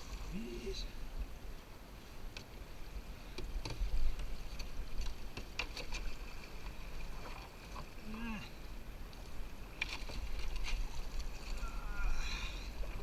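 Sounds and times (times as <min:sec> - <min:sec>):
paddle knocking against rocks: 0:03.3 - 0:07.4.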